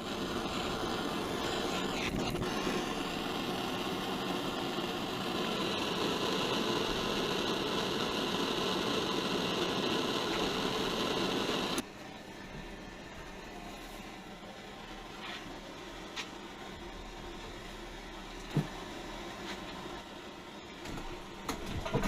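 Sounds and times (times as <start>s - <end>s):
torch flame roaring: 0.0s - 11.9s.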